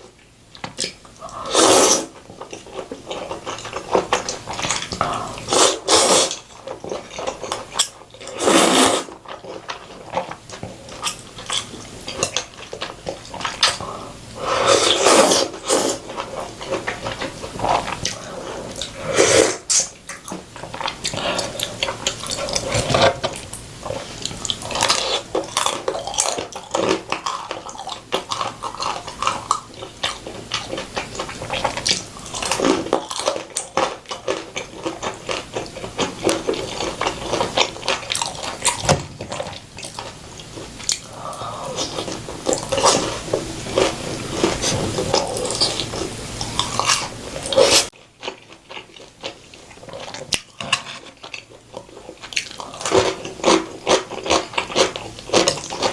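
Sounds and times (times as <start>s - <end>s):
wet chewing: 0.5s - 55.9s
slurping noodles and soup: 1.2s - 2.2s, 5.0s - 6.4s, 8.2s - 9.2s, 13.6s - 19.9s, 40.5s - 47.9s.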